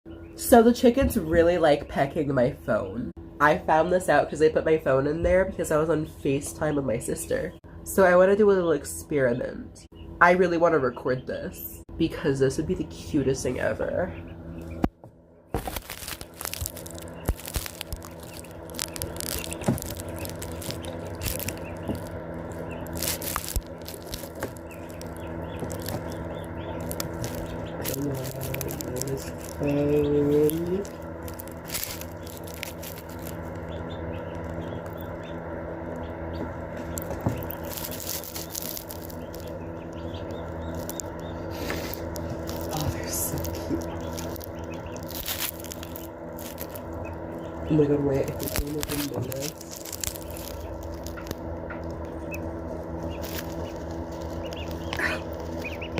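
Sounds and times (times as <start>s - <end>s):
steady low hum: 0.1s - 55.9s
chicks peeping softly: 15.8s - 55.9s
beaks tapping on phone: 33.6s - 43.0s.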